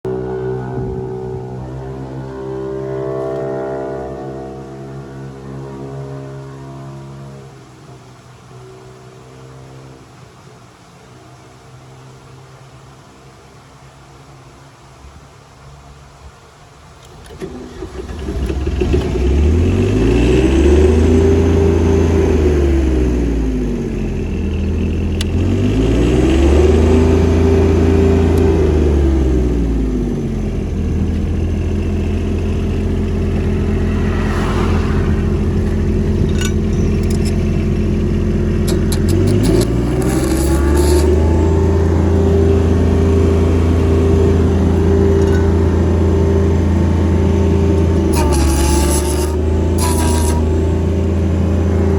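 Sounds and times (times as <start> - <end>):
diesel generator engine revving: 17.0 - 51.9.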